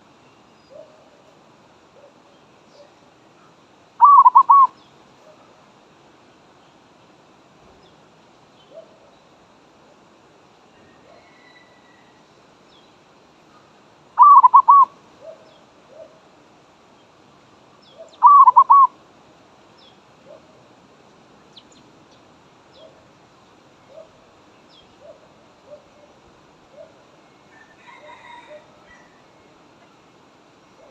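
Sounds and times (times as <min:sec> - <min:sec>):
faint high bird chirps: 0:02.3 - 0:05.0, 0:10.8 - 0:16.1, 0:17.8 - 0:18.9
dove cooing: 0:04.0 - 0:05.5, 0:14.2 - 0:16.2, 0:18.0 - 0:19.0.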